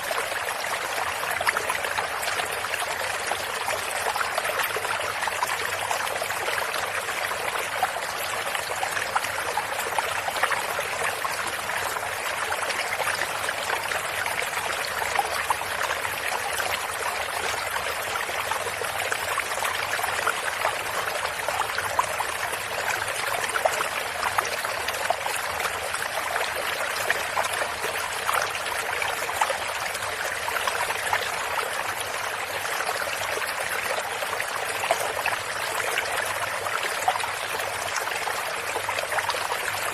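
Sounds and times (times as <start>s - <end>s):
stream water over rocks: 0.0s - 39.9s.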